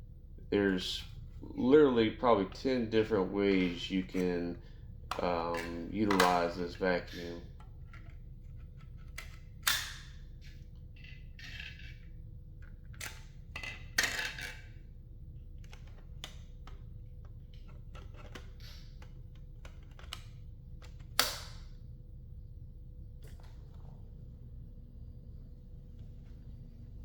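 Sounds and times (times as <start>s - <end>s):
plastic clicks and rattles: 15.6s - 21.4s.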